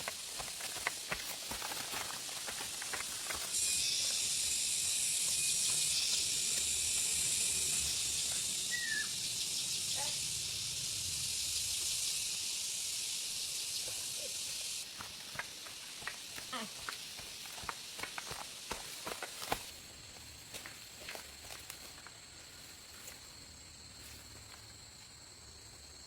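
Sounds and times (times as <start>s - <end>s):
high-pitched hiss: 0.0s - 25.2s
bird chirp: 7.4s - 10.6s.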